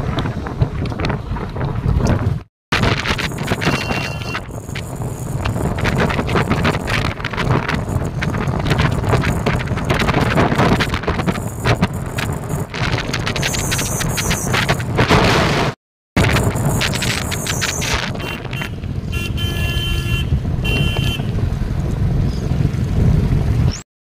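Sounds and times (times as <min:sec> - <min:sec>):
wind buffeting microphone: 0:00.0 - 0:23.8
motorcycle engine running: 0:02.8 - 0:14.5.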